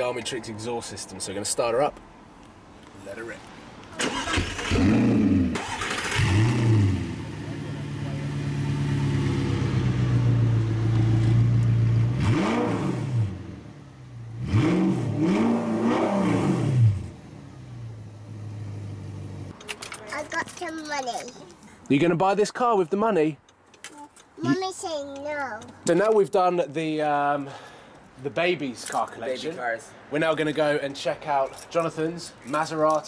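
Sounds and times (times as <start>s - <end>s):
car engine revving: 4.0s - 19.5s.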